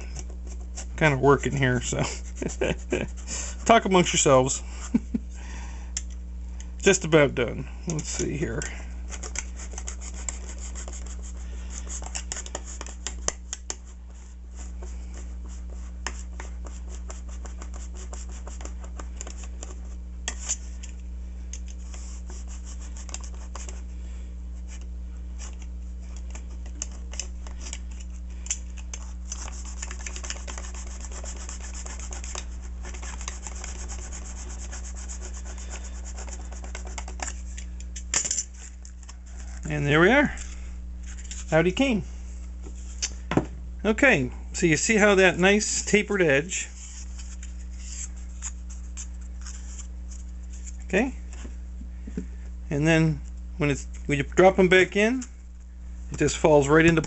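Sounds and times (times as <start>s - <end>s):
knife sawing through foam: 2.0s - 3.8s, 9.1s - 13.2s, 21.9s - 23.8s, 28.9s - 37.0s.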